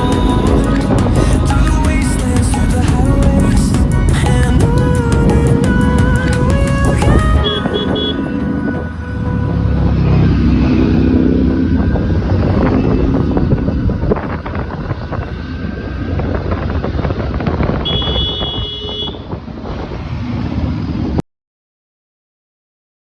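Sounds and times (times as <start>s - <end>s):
motorcycle: 0.0s - 21.2s
road traffic: 0.0s - 21.2s
wind buffeting microphone: 0.0s - 21.2s
brief high-pitched tone: 7.1s - 11.0s.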